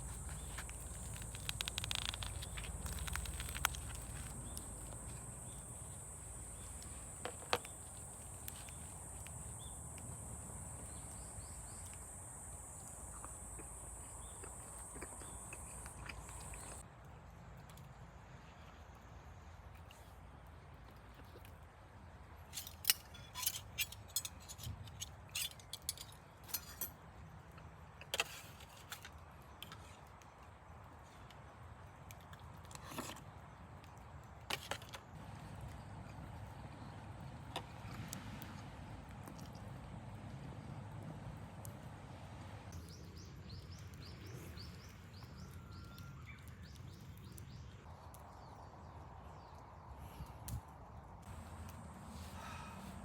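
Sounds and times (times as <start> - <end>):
low steady background noise: 0.0 - 53.0
metallic clinks and rattles: 22.6 - 27.0.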